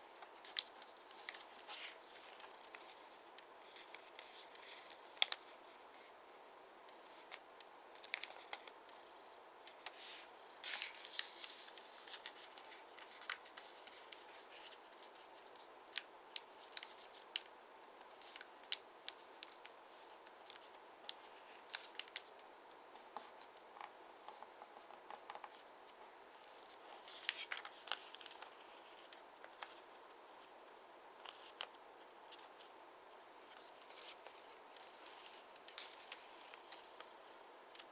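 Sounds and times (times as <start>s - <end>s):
paper rustling: 0.0s - 6.1s, 7.0s - 8.8s, 9.7s - 29.9s
paper crackling as creased: 18.1s - 22.4s.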